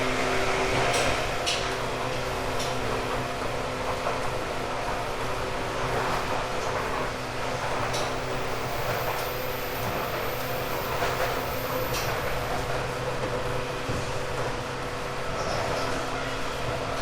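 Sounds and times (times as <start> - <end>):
train motors humming: 0.0 - 17.0
wheel and rail noise: 0.1 - 17.0
faint high whistle: 8.0 - 12.2.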